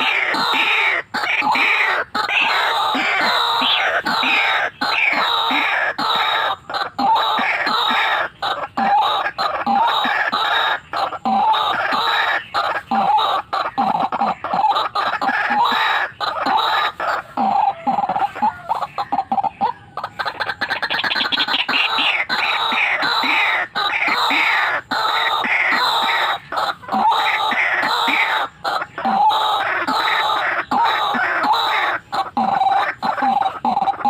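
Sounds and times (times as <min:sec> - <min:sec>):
waterhen calling: 0:00.0 - 0:34.0.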